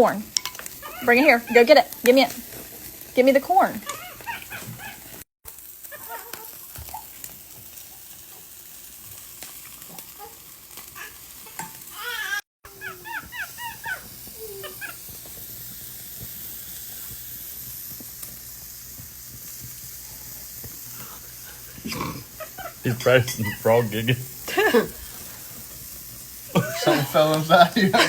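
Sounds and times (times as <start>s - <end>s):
food sizzling on a grill: 0.0s - 28.0s
high squeaky chirps: 22.4s - 24.0s.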